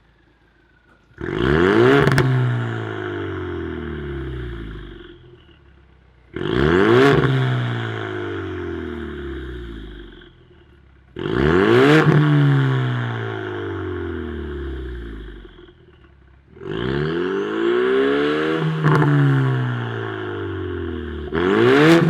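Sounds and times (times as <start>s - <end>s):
car engine revving: 0.8s - 22.0s.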